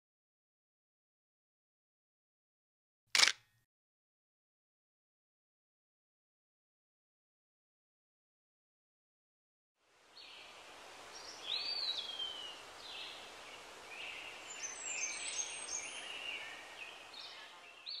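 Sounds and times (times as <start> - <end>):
steady hiss: 9.8 - 17.8
birdsong chirps and whistles: 10.2 - 18.0.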